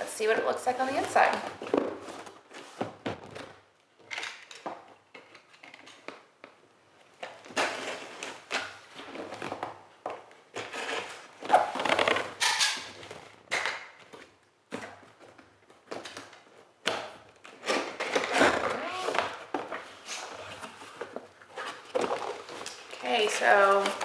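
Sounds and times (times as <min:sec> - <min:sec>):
cardboard box packaging rustling: 0:17.4 - 0:24.0.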